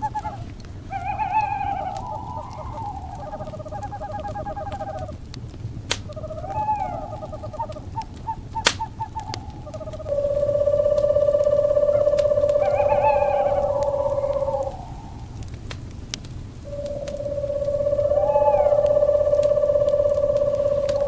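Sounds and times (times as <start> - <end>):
owl trilling calls: 0.0 - 5.2, 6.0 - 15.5, 16.6 - 21.0
fire crackling: 0.0 - 21.0
sharp fire pops: 1.9 - 10.1, 14.9 - 17.7.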